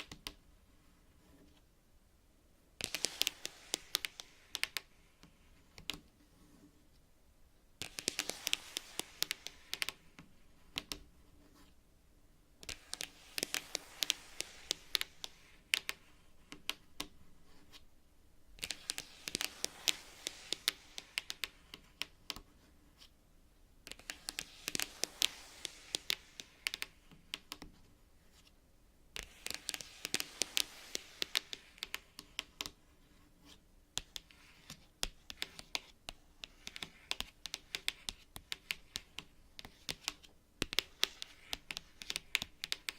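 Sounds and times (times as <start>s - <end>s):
fingernails tapping on cards: 7.8s - 11.1s, 34.0s - 42.9s.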